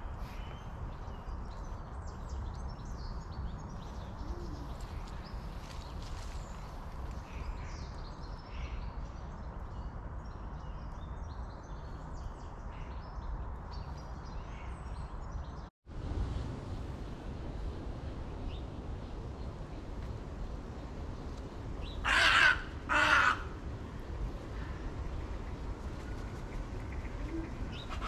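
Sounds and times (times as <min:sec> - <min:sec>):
low outdoor rumble: 0:00.0 - 0:10.9, 0:15.9 - 0:28.0
small birds chirping: 0:00.0 - 0:15.7.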